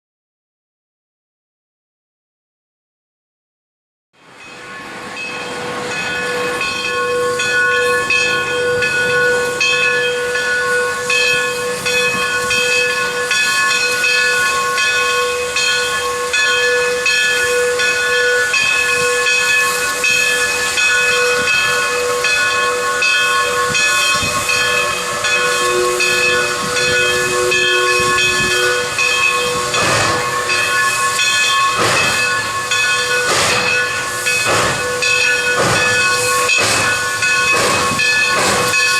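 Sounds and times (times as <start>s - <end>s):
gusts of steam: 4.2s - 38.9s
steam locomotive venting steam: 4.2s - 38.9s.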